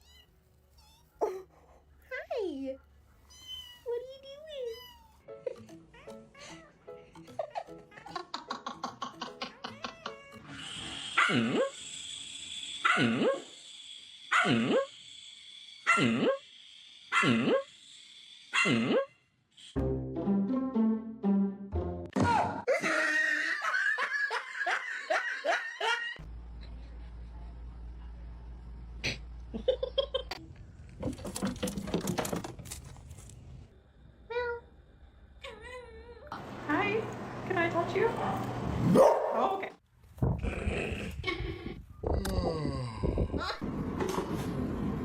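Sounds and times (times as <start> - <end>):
cat meowing: 3.3 - 3.9
dog barking: 12.8 - 13.4, 14.3 - 14.9, 18.6 - 19.0, 38.9 - 39.6.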